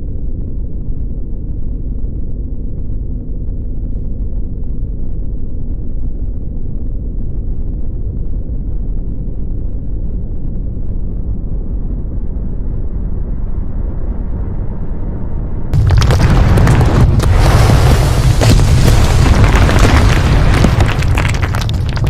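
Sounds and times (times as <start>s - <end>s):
deep rumbling noise: 11.1s - 22.0s.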